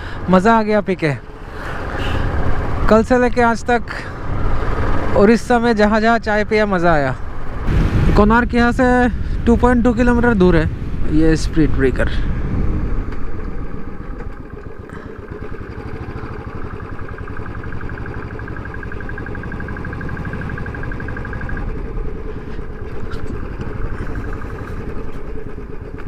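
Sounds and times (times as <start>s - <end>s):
motorcycle engine riding: 0.0s - 26.0s
wind rumble: 1.2s - 26.0s
fast pulsing high tone: 14.8s - 25.9s.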